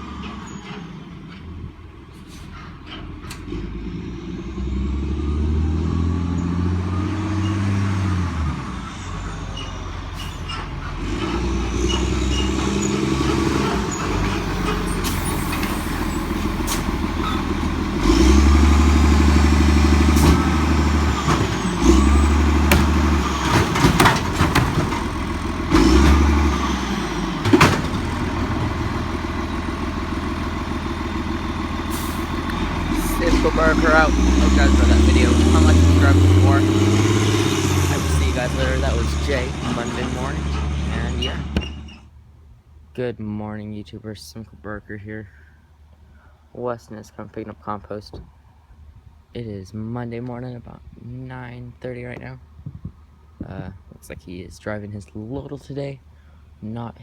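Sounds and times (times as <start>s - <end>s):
garbage truck diesel engine revving: 0.0s - 42.1s
metal clanks and bangs: 8.9s - 29.8s.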